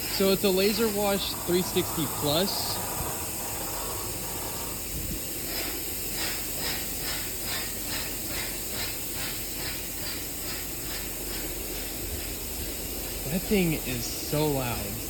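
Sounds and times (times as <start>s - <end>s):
rhythmic swish: 0.0s - 4.9s
high-pressure water spray hiss: 0.0s - 15.0s.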